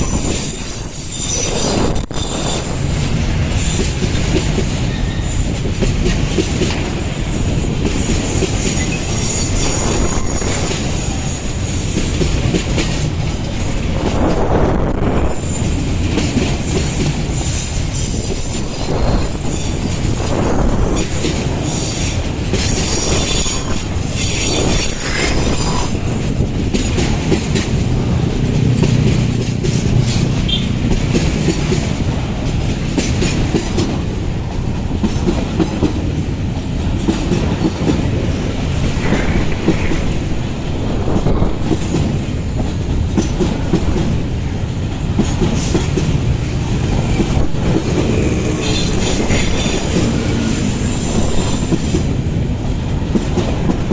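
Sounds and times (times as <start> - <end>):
metallic wheel squeal: 0.0 - 2.8, 22.7 - 25.7
train wheels clacking over rails: 0.0 - 53.9.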